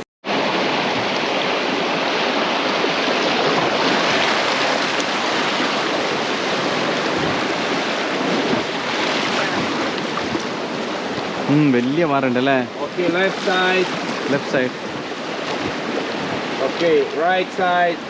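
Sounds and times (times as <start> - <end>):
river whitewater rushing: 0.3 - 18.0.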